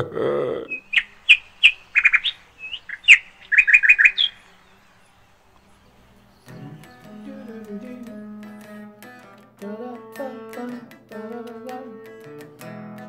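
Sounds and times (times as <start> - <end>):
small bird chirping: 0.7 - 7.2.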